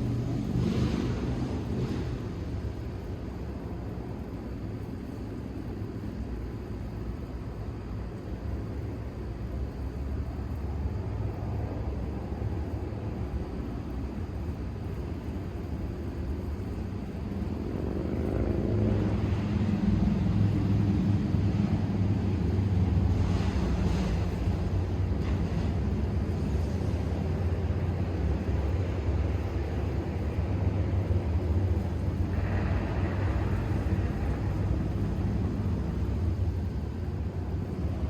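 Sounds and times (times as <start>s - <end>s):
distant engine rumble: 17.2s - 38.0s.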